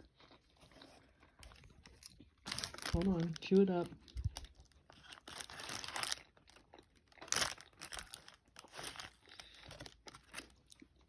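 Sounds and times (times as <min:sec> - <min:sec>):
paper wrapper crinkling: 0:00.6 - 0:10.8.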